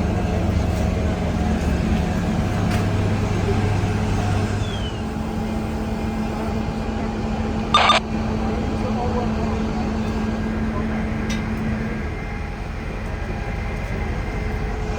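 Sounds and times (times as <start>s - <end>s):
heavy diesel engines running: 0.0s - 8.0s.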